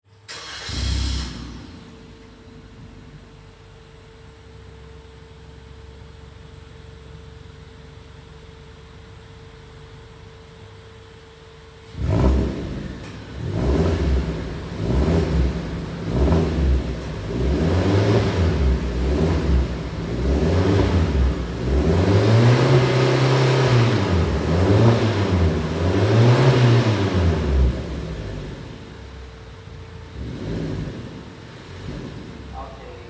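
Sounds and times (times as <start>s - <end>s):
car engine revving: 11.9s - 33.0s.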